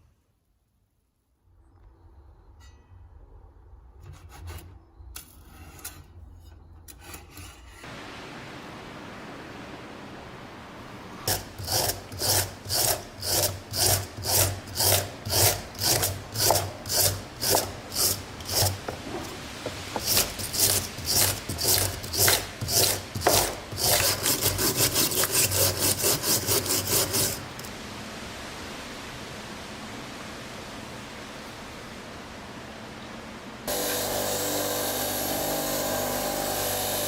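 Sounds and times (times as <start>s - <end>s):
file scraping metal: 4.0s - 7.9s, 11.3s - 27.6s, 33.7s - 37.0s.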